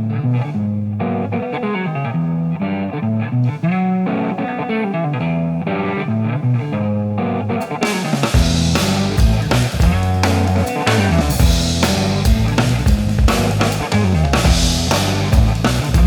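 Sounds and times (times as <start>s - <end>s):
drum kit steady beat: 7.7s - 16.0s.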